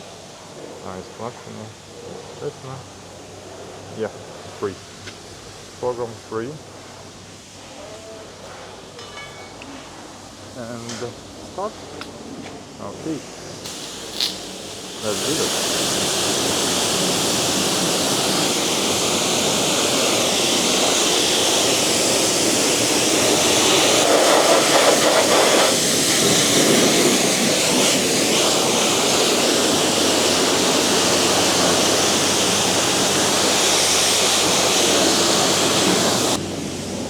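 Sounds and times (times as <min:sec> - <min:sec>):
pressure washer spraying water: 0:13.6 - 0:37.0.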